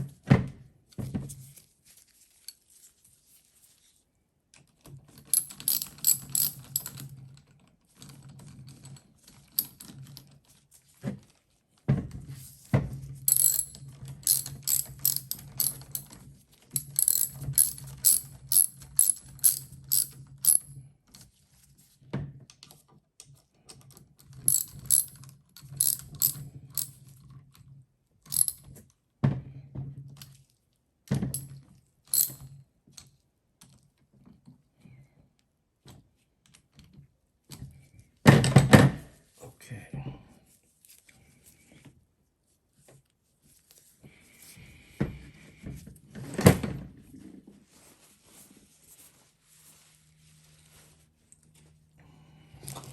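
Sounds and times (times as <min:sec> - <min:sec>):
ratchet wrench clicking: 0:05.4 - 0:07.0, 0:13.3 - 0:16.1, 0:16.8 - 0:20.6, 0:24.5 - 0:25.1, 0:25.8 - 0:26.9, 0:28.3 - 0:28.6.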